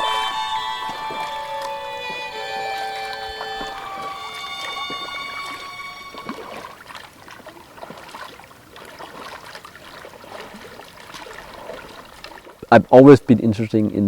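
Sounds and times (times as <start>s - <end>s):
steady music tones: 0.0s - 6.6s
water drips: 0.0s - 12.7s
water splashing and trickling: 0.0s - 14.0s.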